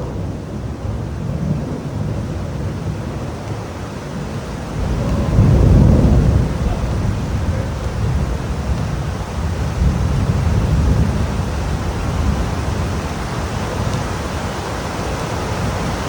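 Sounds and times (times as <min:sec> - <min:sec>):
heavy rain: 0:00.0 - 0:16.0
deep rumble: 0:04.3 - 0:14.0.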